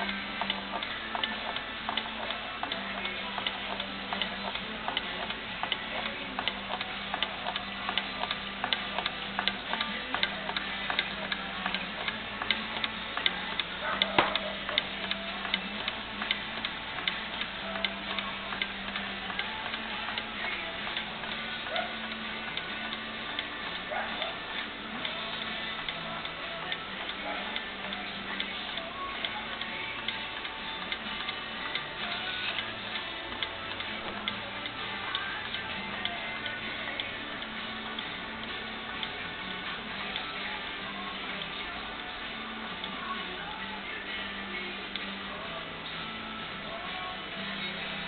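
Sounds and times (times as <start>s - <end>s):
small engine mechanism ticking: 0.0s - 42.2s
sharp click: 6.4s - 17.2s.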